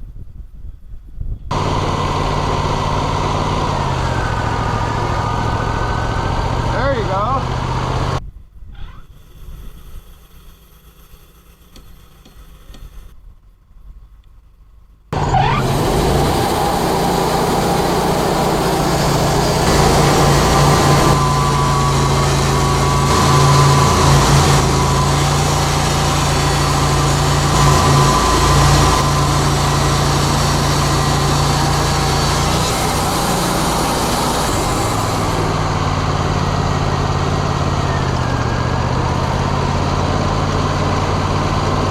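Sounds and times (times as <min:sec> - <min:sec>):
sawmill engine running loudly: 0:01.5 - 0:08.2, 0:09.0 - 0:13.1, 0:15.2 - 0:41.9.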